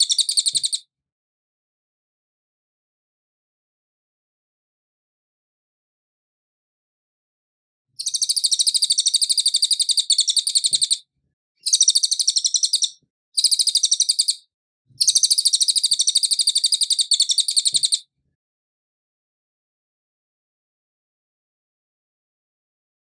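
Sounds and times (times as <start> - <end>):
songbird high-pitched trills: 0.0 - 0.8, 8.0 - 11.0, 11.6 - 14.4, 15.0 - 18.0.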